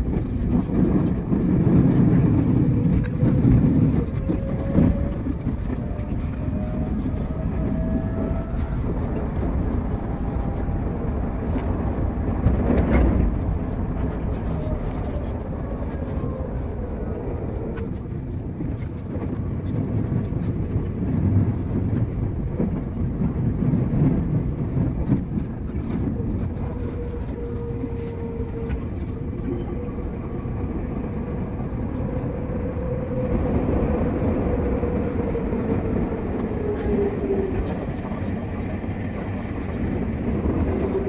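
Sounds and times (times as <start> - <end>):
train wheels rumbling on rail: 0.0 - 41.0
high wheel squeal: 26.8 - 34.8.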